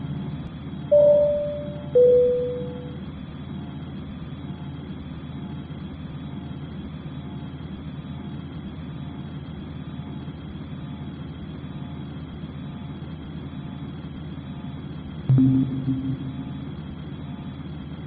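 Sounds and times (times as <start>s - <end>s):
airliner cabin drone: 0.0s - 5.6s, 12.6s - 18.0s.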